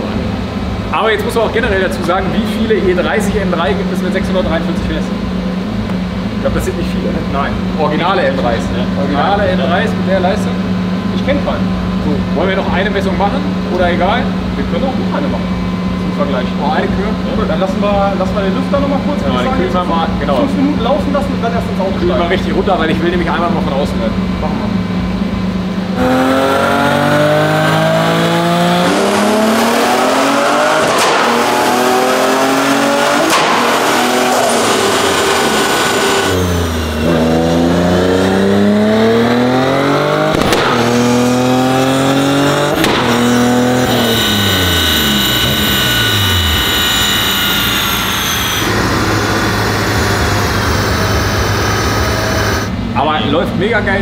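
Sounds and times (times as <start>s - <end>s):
car engine revving through gears: 25.9s - 52.8s.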